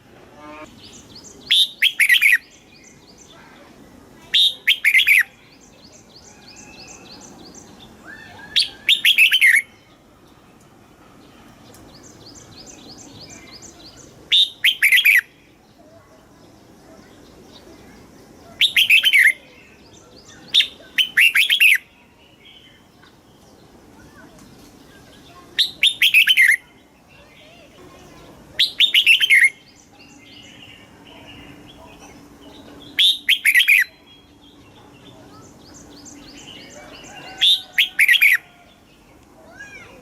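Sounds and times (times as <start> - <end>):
soft bird chirping: 0.4 - 40.0
bird singing whistled notes: 0.5 - 3.3, 4.4 - 10.0, 11.9 - 15.4, 18.5 - 22.8, 25.6 - 27.2, 28.6 - 38.4.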